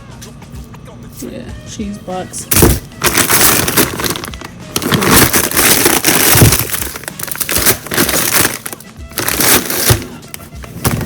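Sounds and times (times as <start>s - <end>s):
plastic packaging crinkling: 2.5s - 10.4s.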